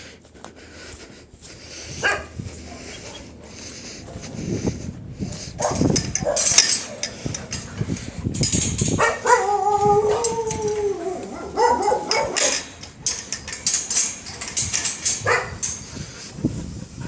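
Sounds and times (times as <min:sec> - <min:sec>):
dog barking: 0:02.0 - 0:03.6, 0:05.6 - 0:07.0, 0:09.0 - 0:10.3, 0:11.2 - 0:12.6, 0:15.2 - 0:15.6
clicks and rattles: 0:05.6 - 0:16.0
dog yipping: 0:09.0 - 0:12.6
dog howling: 0:09.0 - 0:12.7.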